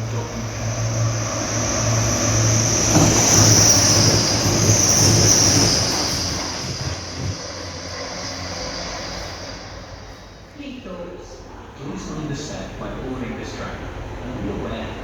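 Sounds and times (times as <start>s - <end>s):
low train hum: 0.0s - 11.7s
train wheels squealing: 0.1s - 10.5s.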